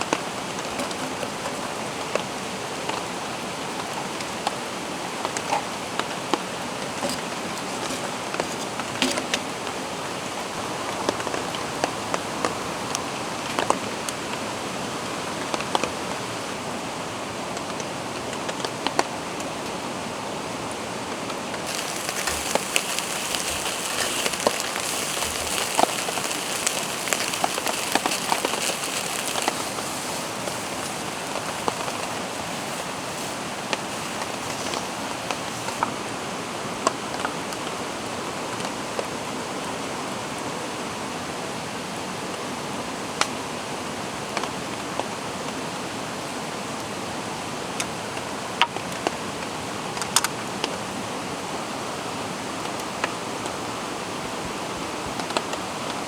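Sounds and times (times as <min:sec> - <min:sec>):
mountain stream rushing: 0:21.6 - 0:36.5
bright hiss: 0:21.7 - 0:35.9
rain drops ticking: 0:21.7 - 0:36.0.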